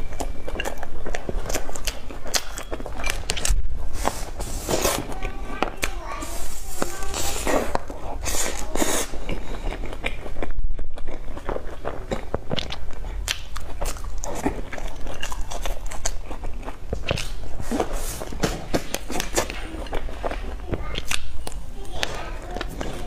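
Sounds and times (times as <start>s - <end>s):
chewing cream puffs: 0.0s - 23.0s
wet mouth clicks: 7.3s - 17.9s, 18.8s - 21.6s.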